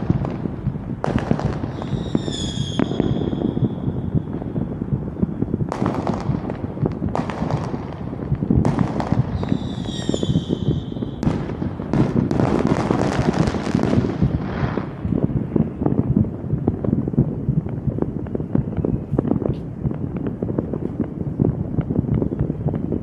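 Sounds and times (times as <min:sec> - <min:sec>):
fireworks bangs and crackles: 0:00.0 - 0:23.0
high firework whistle: 0:01.6 - 0:04.2, 0:09.3 - 0:11.6.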